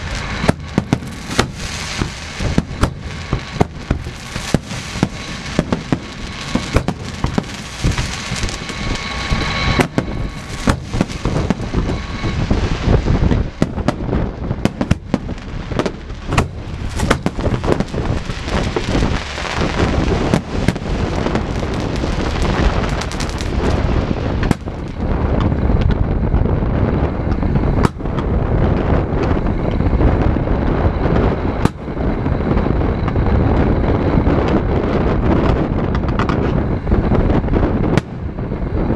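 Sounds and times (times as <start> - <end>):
firework whistling: 0.0 - 25.8
fireworks bangs: 0.0 - 38.9
fireworks crackling: 0.0 - 38.9.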